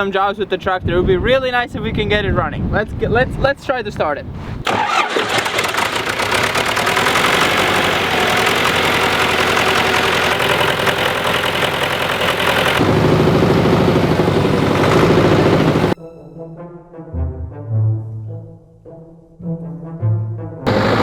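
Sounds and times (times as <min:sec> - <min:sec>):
tractor engine running: 0:04.7 - 0:16.0, 0:20.7 - 0:21.0.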